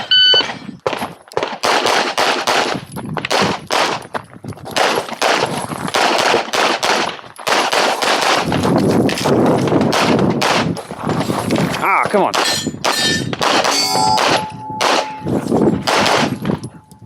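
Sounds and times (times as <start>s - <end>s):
handgun shots in rapid strings: 12.3s - 15.2s, 15.8s - 16.6s.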